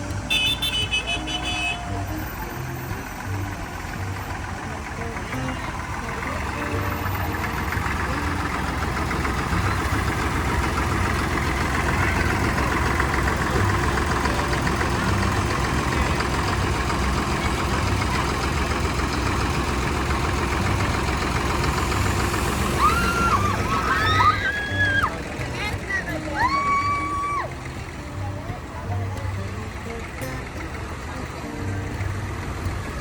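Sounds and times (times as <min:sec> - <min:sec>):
tractor diesel engines: 0:00.0 - 0:33.0.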